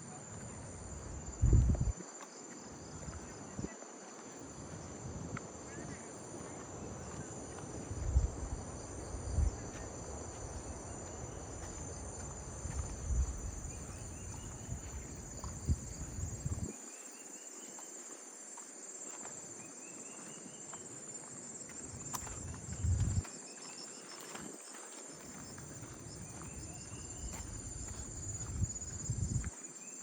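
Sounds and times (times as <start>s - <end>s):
insect chorus shrilling: 5.7s - 18.2s, 18.9s - 30.0s.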